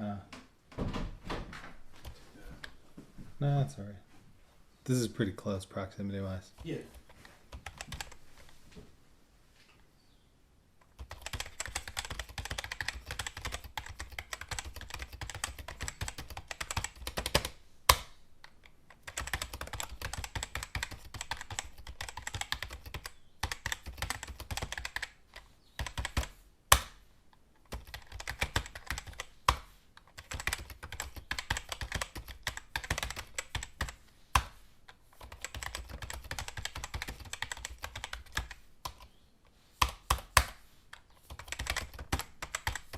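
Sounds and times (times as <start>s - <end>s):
keyboard typing: 6.5s - 8.2s, 10.8s - 26.9s, 27.6s - 39.2s, 39.8s - 42.9s.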